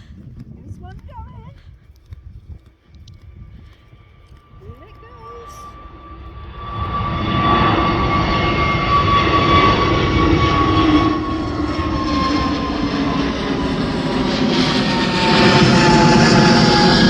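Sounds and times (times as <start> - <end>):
jet engines roaring on takeoff: 3.5 - 17.0
high engine whine: 4.0 - 17.0.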